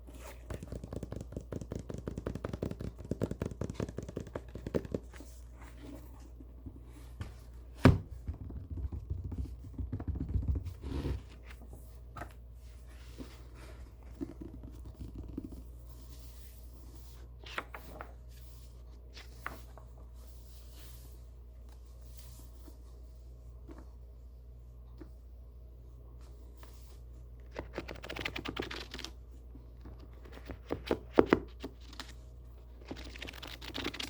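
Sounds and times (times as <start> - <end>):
hand tapping book: 0.2 - 5.4, 7.8 - 10.8, 14.1 - 15.6
paper crackling and scratching: 32.8 - 34.0.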